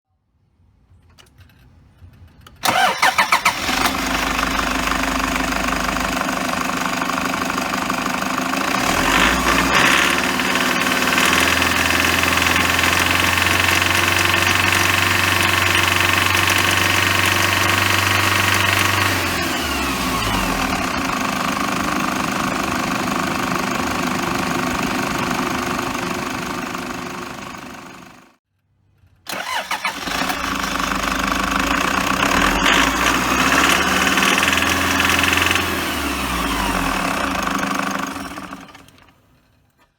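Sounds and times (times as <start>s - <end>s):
diesel engine starting and idling: 2.6s - 28.4s, 29.3s - 39.7s.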